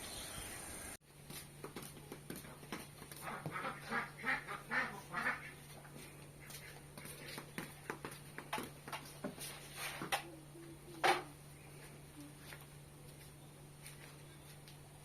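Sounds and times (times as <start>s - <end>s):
ducks quacking: 3.2s - 5.7s.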